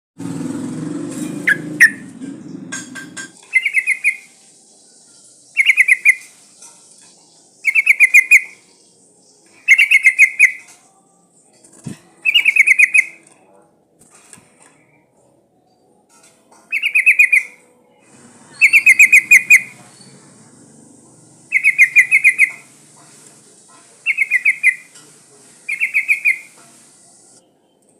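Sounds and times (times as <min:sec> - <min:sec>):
bird chattering trills: 0:01.4 - 0:02.8, 0:03.5 - 0:04.3, 0:05.6 - 0:06.3, 0:07.6 - 0:08.6, 0:09.6 - 0:10.7, 0:12.2 - 0:13.2, 0:16.7 - 0:17.6, 0:18.5 - 0:20.2, 0:21.5 - 0:23.2, 0:24.0 - 0:25.0, 0:25.7 - 0:26.6.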